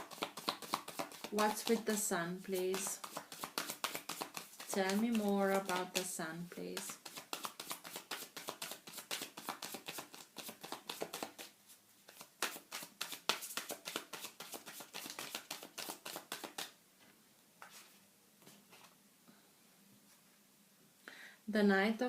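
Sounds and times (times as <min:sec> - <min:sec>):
cards being shuffled: 0:00.0 - 0:11.5, 0:12.1 - 0:16.8.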